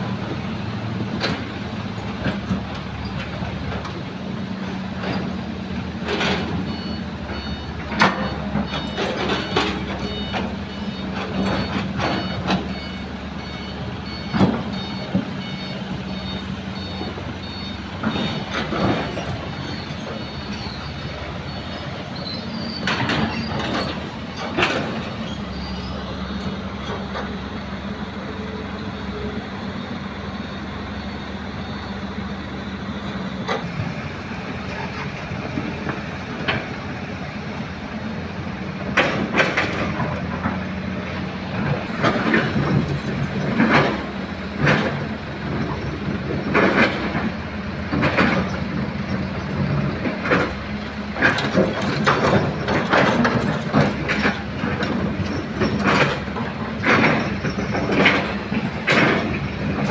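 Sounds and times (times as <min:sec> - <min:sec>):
diesel engine running: 0:00.0 - 0:59.9
metallic clanks and knocks: 0:22.8 - 0:25.7, 0:51.2 - 0:59.9.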